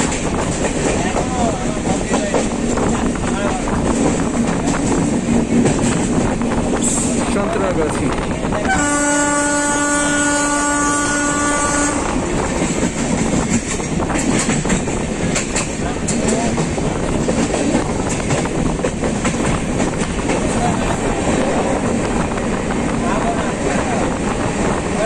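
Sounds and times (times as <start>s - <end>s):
passenger coach rumbling: 0.0s - 25.0s
train horn blast: 8.6s - 12.2s
wheels clattering over rail joints: 12.5s - 22.6s.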